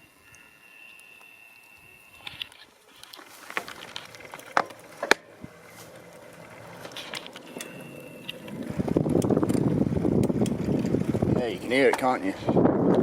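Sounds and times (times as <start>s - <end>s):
thin bird whistle: 0.0s - 2.6s
bicycle clicking: 0.2s - 13.0s
wind rush on microphone: 8.4s - 13.0s.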